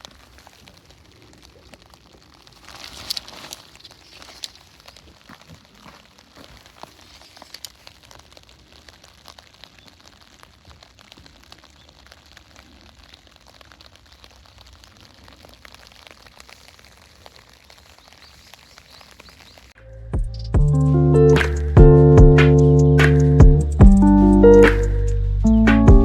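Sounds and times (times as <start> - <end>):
campfire crackling: 0.0 - 19.8.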